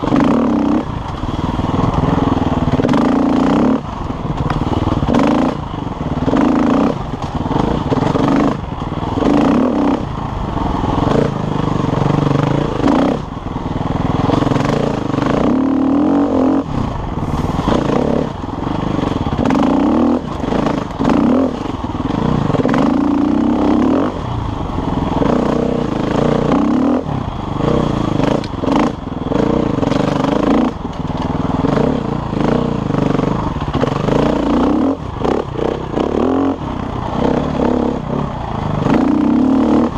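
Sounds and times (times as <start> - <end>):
knocks and clatter from bike: 0.0 - 10.1, 27.6 - 36.4
motorcycle engine revving: 0.0 - 39.9.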